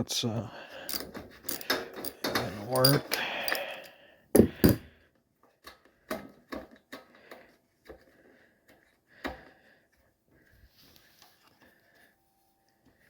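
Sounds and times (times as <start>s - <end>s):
metal and plastic parts clicking: 0.9s - 3.9s
loud knocks on parts: 4.4s - 4.9s.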